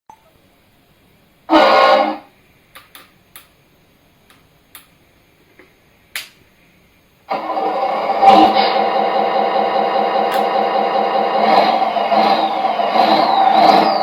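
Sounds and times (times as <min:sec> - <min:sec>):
toy truck horn blast: 0:01.5 - 0:02.3.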